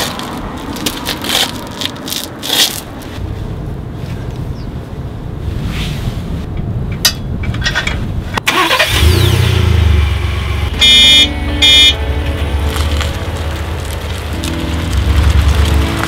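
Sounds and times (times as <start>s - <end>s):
car engine starting and idling: 8.4s - 16.0s
car horn beeps: 10.6s - 12.6s.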